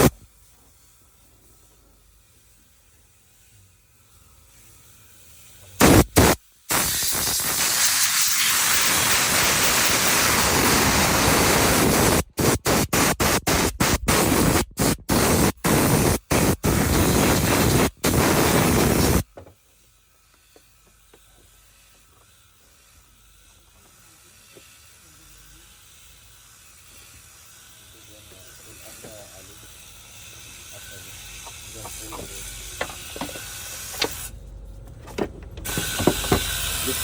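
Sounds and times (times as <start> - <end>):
pressure washer jet hissing: 5.8 - 19.2, 30.8 - 34.3, 35.6 - 37.0.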